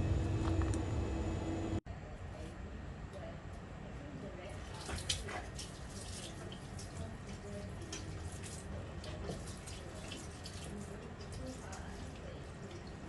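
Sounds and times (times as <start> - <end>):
water splashes and drips: 4.6 - 13.0.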